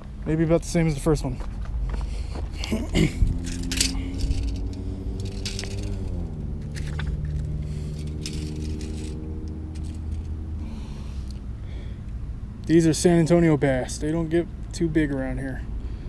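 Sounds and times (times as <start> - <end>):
vehicle engine hum: 0.0 - 16.0
clicks and rustles of handling: 3.4 - 10.4.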